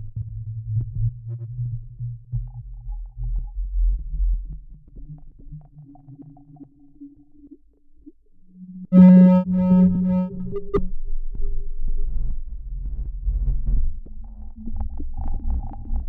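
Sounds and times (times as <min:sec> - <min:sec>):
distorted sub-bass drone: 0:00.0 - 0:07.4, 0:08.5 - 0:16.0
thin steady tone: 0:05.5 - 0:10.8.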